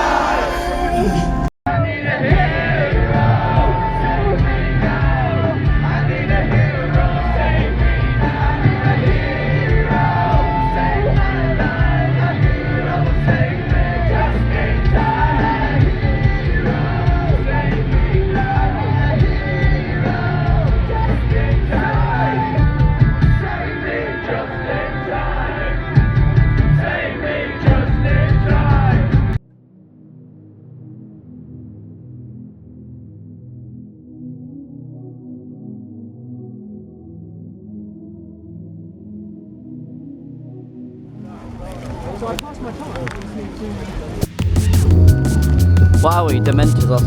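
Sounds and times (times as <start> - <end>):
person singing: 0.0 - 25.9
rock band playing live: 2.3 - 24.2, 25.7 - 29.4, 44.4 - 47.0.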